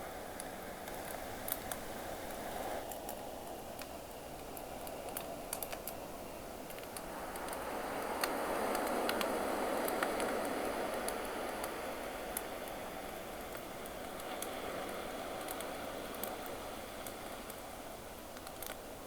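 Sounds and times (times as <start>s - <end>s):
campfire crackling and popping: 2.8s - 6.0s, 12.3s - 17.6s.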